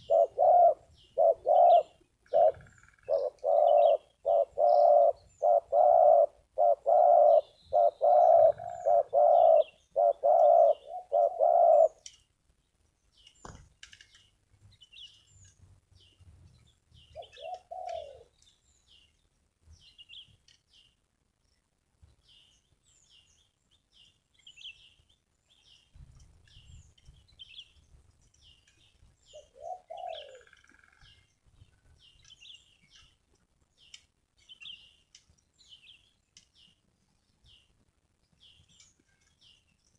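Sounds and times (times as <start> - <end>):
dove cooing: 0.0 - 12.0, 17.1 - 18.3, 29.3 - 31.1
small birds chirping: 0.0 - 39.9.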